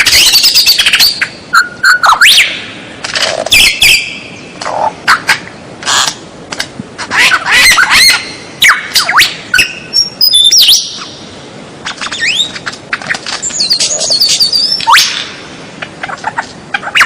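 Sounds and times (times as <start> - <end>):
bird singing whistles: 0.2 - 2.6, 7.7 - 11.1, 12.0 - 12.6, 13.4 - 15.3.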